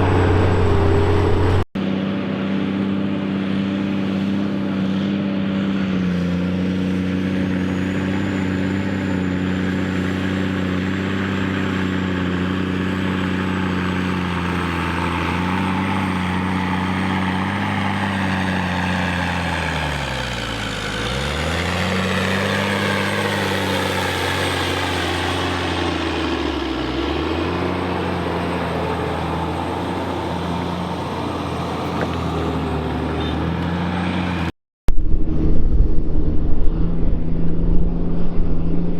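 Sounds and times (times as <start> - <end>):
tractor diesel engine running: 0.0 - 1.7.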